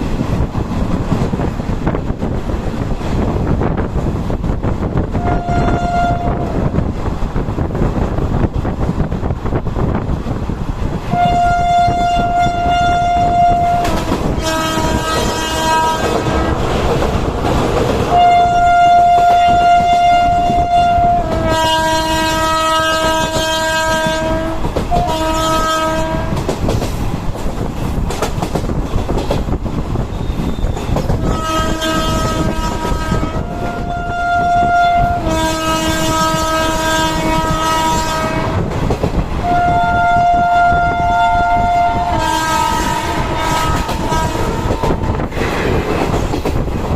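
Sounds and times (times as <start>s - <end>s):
train rumble and wheel clatter: 0.0s - 46.9s
train horn long blasts: 5.1s - 6.8s, 11.1s - 16.8s, 18.1s - 26.5s, 31.2s - 38.7s, 39.4s - 45.3s.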